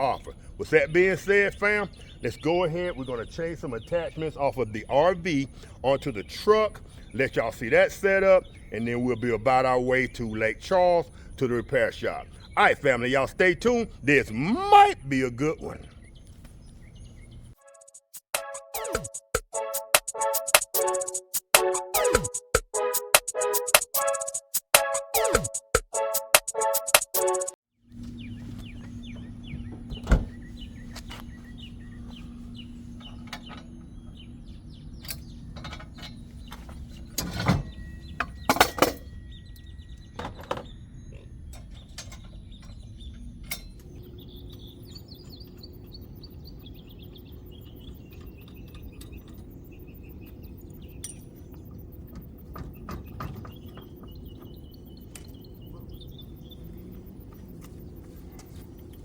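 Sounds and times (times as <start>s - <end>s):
steady low hum: 0.0s - 14.4s, 27.9s - 59.0s
birds chirping: 0.0s - 22.4s, 26.6s - 59.0s
metallic clanks and knocks: 29.1s - 30.7s, 32.1s - 44.0s, 51.0s - 55.4s.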